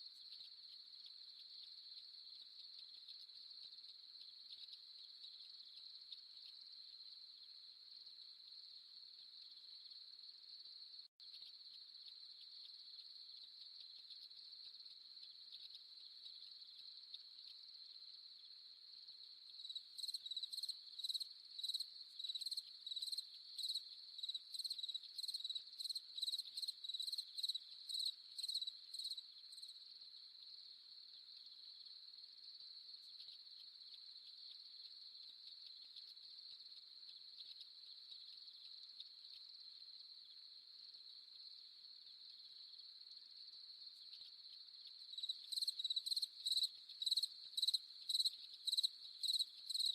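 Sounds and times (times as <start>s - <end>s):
crickets trilling: 19.2s - 29.7s, 43.8s - 49.9s
louder insect chirping: 19.5s - 29.7s, 44.0s - 49.9s.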